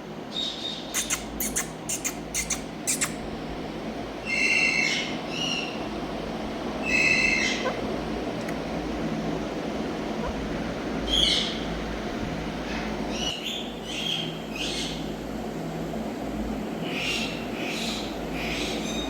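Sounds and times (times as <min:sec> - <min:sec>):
low background hum: 0:00.0 - 0:19.0
parakeet shrill calls: 0:00.3 - 0:03.2, 0:04.2 - 0:05.8, 0:06.8 - 0:07.8, 0:11.1 - 0:11.7.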